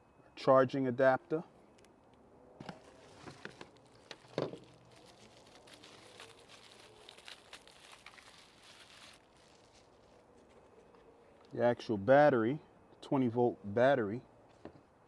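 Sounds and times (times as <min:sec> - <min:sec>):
packaging crinkling: 0:02.6 - 0:10.6.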